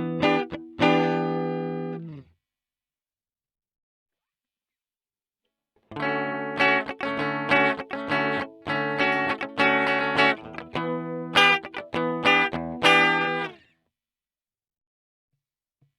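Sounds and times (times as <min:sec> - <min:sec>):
clean electric guitar chords: 0:00.0 - 0:02.2, 0:06.0 - 0:13.6.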